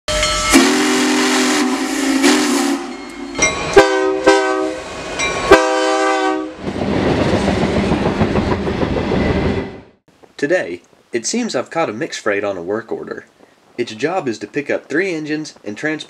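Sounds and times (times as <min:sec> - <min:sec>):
diesel air horn blasts: 0:00.1 - 0:03.0, 0:03.8 - 0:04.9, 0:05.5 - 0:06.6
steam locomotive whistle: 0:00.1 - 0:06.6
train rolling past: 0:00.1 - 0:10.0.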